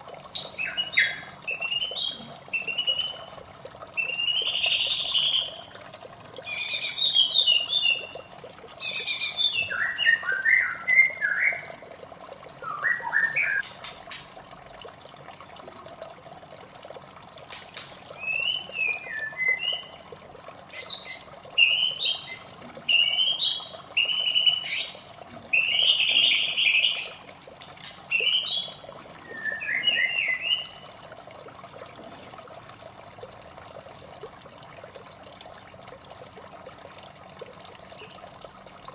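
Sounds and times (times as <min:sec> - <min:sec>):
trickle of running water: 0:00.0 - 0:38.9
bird singing whistled phrases: 0:00.4 - 0:03.3, 0:04.0 - 0:05.6, 0:06.5 - 0:08.1, 0:08.9 - 0:11.8, 0:12.6 - 0:13.6, 0:18.2 - 0:20.0, 0:20.8 - 0:27.2, 0:28.1 - 0:30.8.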